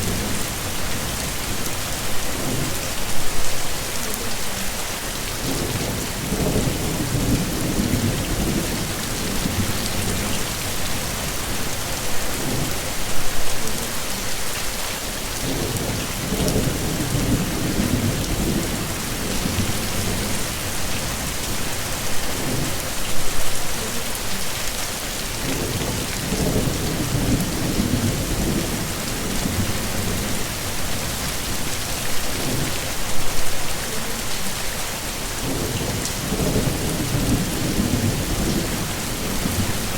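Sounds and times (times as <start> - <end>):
heavy rain: 0.0 - 39.9
thunder rumbling: 15.4 - 21.7.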